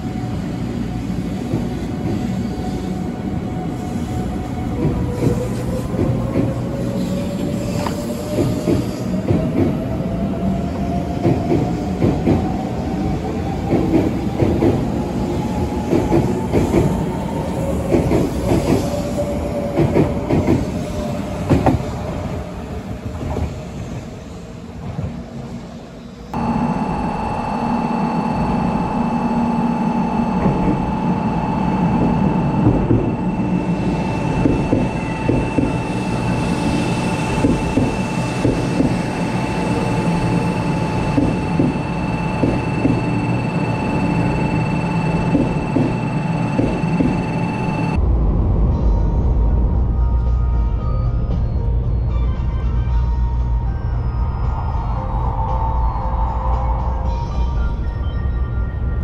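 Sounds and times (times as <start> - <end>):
train high hum: 0.0 - 59.0
train motor whine: 26.4 - 48.0
train wheels clicking over rail joints: 37.3 - 39.2, 40.9 - 41.8, 45.1 - 47.2.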